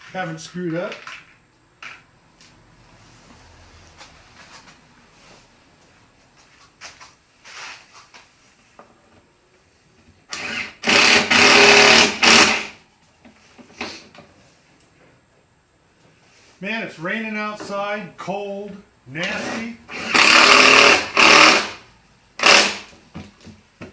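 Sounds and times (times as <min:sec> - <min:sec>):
power drill driving screw into wood: 0:10.3 - 0:12.8, 0:19.2 - 0:21.8, 0:22.4 - 0:22.9.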